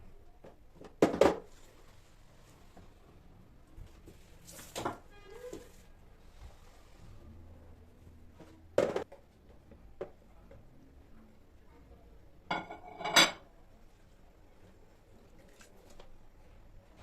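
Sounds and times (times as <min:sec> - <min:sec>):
kitchenware knocking and tapping: 0:12.5 - 0:13.4
kitchenware clinking: 0:12.5 - 0:13.5.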